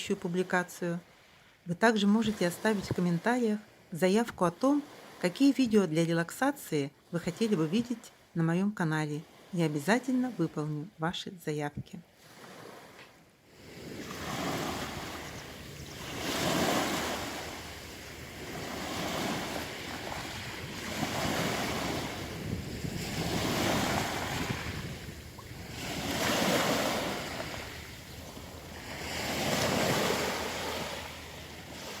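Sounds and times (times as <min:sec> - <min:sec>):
waves washing over pebbles: 0:12.2 - 0:32.0.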